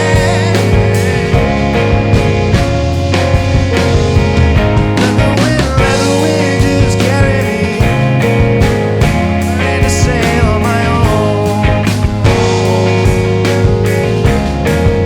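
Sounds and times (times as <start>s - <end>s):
lead guitar pitch bends: 0.0s - 15.0s
rock band playing: 0.0s - 15.0s.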